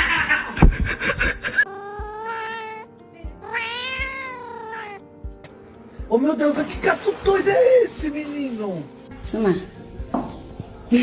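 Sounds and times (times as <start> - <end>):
cat yowling: 1.7 - 5.0.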